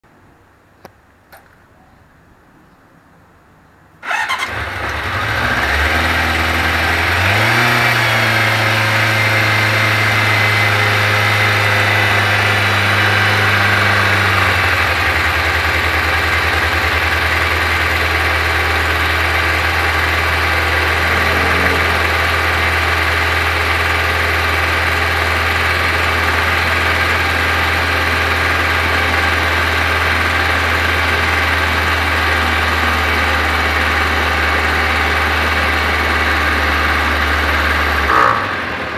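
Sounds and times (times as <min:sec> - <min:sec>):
motorcycle engine starting and idling: 0:04.0 - 0:38.9.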